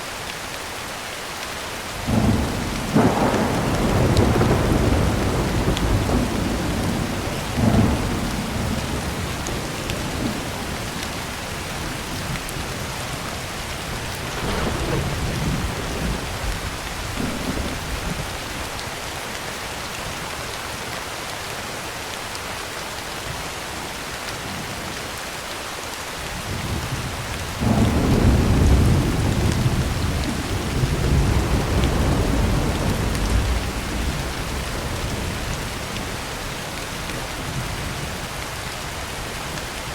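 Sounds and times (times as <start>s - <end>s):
heavy rain on a tin roof: 0.0s - 39.9s
rolling thunder: 2.0s - 18.8s, 26.4s - 38.3s.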